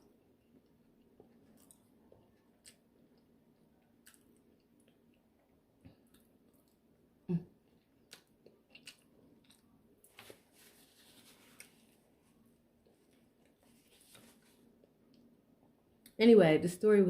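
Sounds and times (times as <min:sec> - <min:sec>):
quiet chewing: 0:00.2 - 0:06.9, 0:07.6 - 0:15.3.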